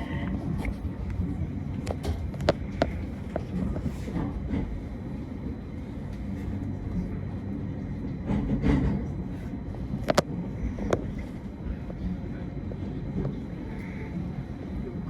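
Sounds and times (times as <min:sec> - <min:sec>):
train rumbling on rails: 0:00.0 - 0:15.0
light rail clicks: 0:09.9 - 0:12.1.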